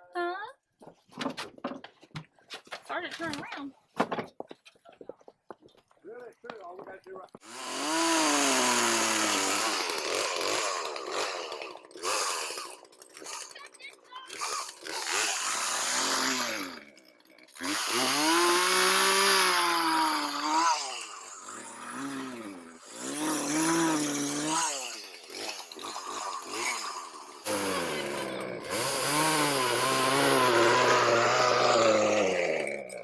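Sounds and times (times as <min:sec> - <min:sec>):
chainsaw revving and cutting wood: 0:07.4 - 0:33.0.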